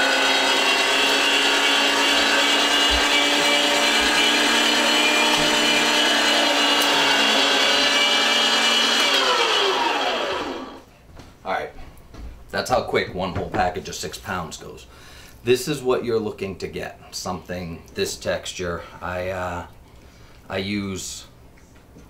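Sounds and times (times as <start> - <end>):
electric meat grinder running: 0.0 - 10.8
motor winding down: 0.0 - 10.8.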